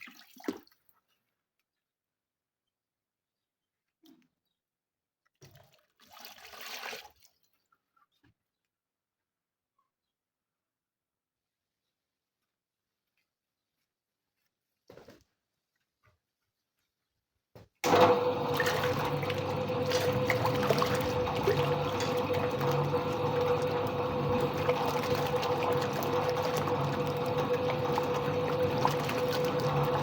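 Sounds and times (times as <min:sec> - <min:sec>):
washing machine motor hum: 0:17.8 - 0:30.0
water churning in tub: 0:17.8 - 0:30.0.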